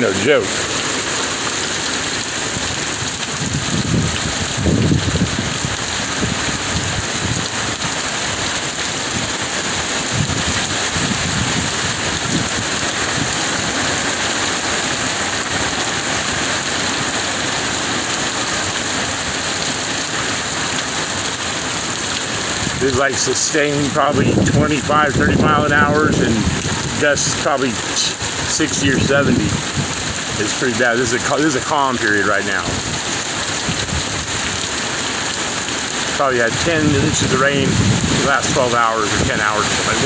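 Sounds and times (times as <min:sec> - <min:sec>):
heavy rain hissing: 0:00.0 - 0:40.0
wind buffeting microphone: 0:02.4 - 0:08.4, 0:09.0 - 0:14.0, 0:23.8 - 0:30.4, 0:32.6 - 0:34.8, 0:36.0 - 0:40.0.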